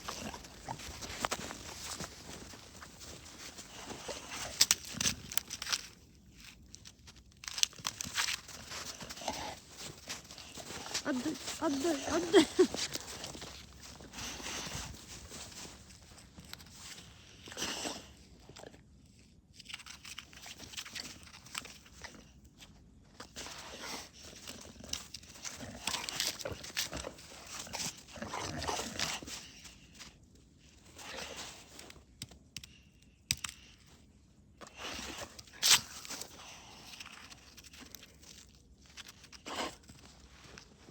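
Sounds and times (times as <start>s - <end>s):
crunching in snow: 0.0s - 18.2s
crunching and rustling: 0.0s - 18.8s, 19.5s - 32.2s, 33.3s - 40.9s
dog noises: 8.6s - 15.7s.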